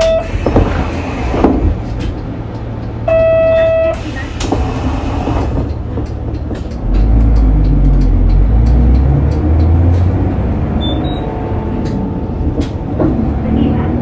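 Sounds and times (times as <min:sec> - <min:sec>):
bus engine accelerating: 0:00.0 - 0:14.0
air brake hiss: 0:04.0 - 0:05.6.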